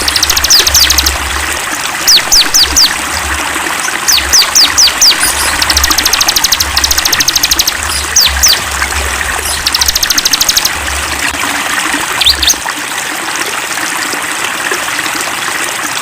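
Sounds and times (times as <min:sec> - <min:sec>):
songbirds trilling and whistling: 0:00.0 - 0:01.4, 0:02.0 - 0:03.0, 0:03.8 - 0:10.8, 0:12.2 - 0:12.6
stream trickling: 0:00.0 - 0:16.0.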